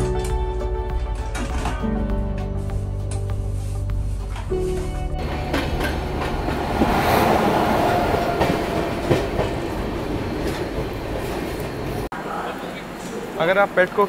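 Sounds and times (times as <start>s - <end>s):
train wheels rumbling and rattling: 4.3s - 12.1s
wheels knocking over rail joints: 5.2s - 11.0s.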